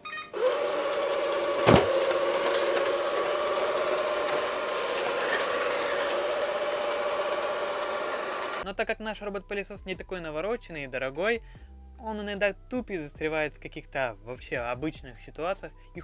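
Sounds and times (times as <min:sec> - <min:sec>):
robot vacuum motor whine: 0:00.4 - 0:08.6
sharp knock: 0:01.6 - 0:02.0.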